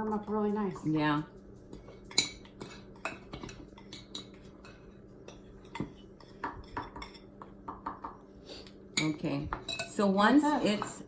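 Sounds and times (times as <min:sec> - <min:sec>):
utensils clinking on dishes: 0:01.8 - 0:07.4, 0:09.0 - 0:11.0.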